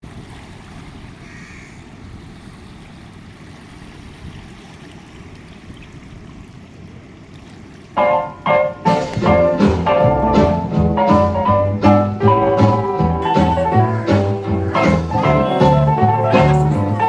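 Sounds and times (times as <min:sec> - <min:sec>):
rushing water: 0:00.0 - 0:17.0
bird calling faintly: 0:01.2 - 0:01.8
loud music: 0:08.0 - 0:17.0.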